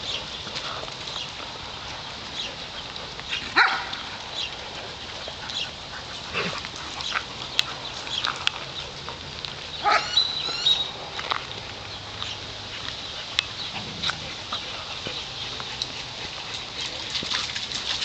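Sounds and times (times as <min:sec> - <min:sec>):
dogs barking: 0:03.3 - 0:04.7, 0:09.8 - 0:11.0.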